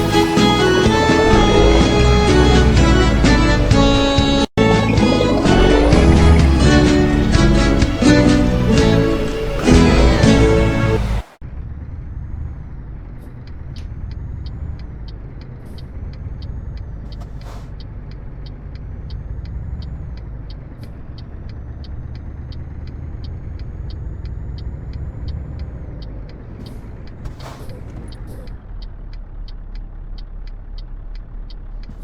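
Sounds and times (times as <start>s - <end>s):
diesel truck engine running: 0.0s - 32.0s
light even ticking: 13.0s - 32.0s.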